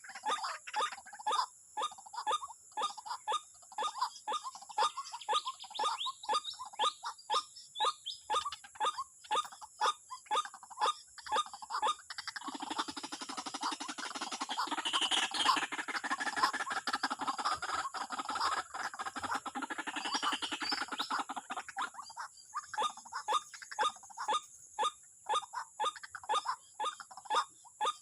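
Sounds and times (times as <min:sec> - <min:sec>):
waterhen calling: 0:00.0 - 0:01.5, 0:12.0 - 0:24.5.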